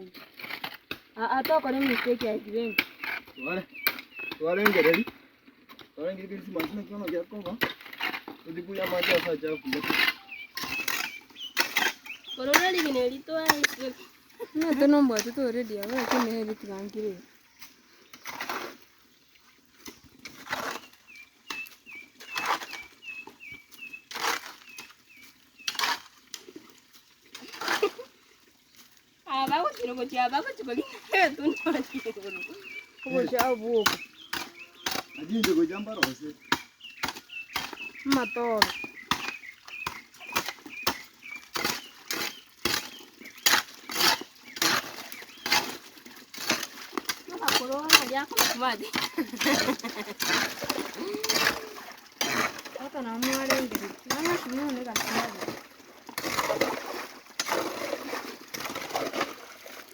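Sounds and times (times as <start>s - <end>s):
small bird chirping: 1.4s - 5.1s, 8.6s - 18.6s, 20.6s - 25.9s, 30.7s - 45.8s
short high chirps: 9.8s - 10.6s.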